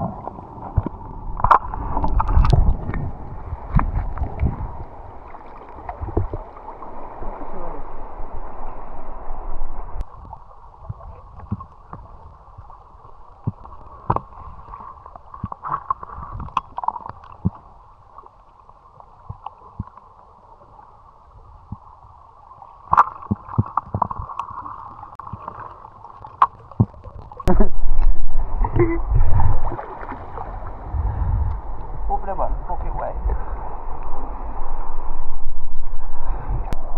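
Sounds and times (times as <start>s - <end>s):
low rumble: 0.0s - 14.0s, 27.5s - 36.9s
muffled water gurgling and sloshing: 0.0s - 36.9s.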